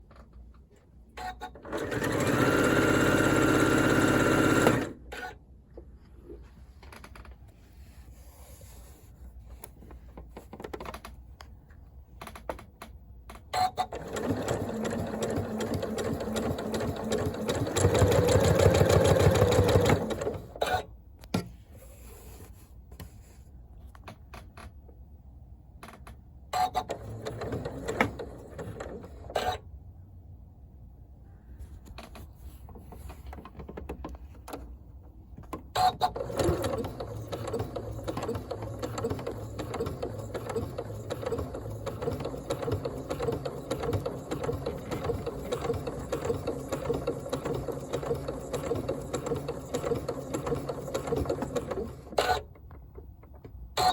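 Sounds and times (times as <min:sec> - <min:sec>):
sewing machine clicks: 0:01.2 - 0:05.3, 0:12.2 - 0:20.8, 0:35.8 - 0:52.9
sewing machine stitching: 0:01.2 - 0:05.4, 0:13.6 - 0:20.9, 0:26.6 - 0:29.6, 0:35.8 - 0:52.6.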